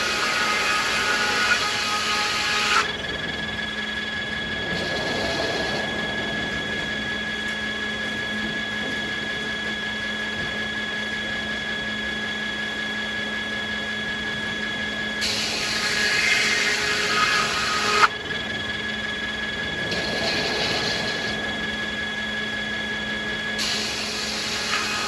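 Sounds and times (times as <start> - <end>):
saw blade cutting wood: 0.0 - 2.9, 15.2 - 18.1, 23.6 - 25.0
circular saw whining: 0.0 - 25.0.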